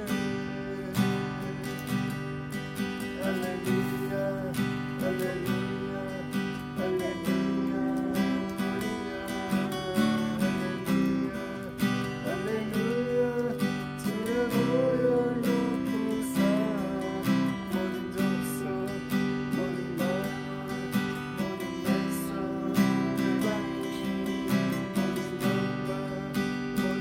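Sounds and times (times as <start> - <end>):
acoustic guitar strumming: 0.0 - 27.0
person singing praise song: 0.0 - 27.0.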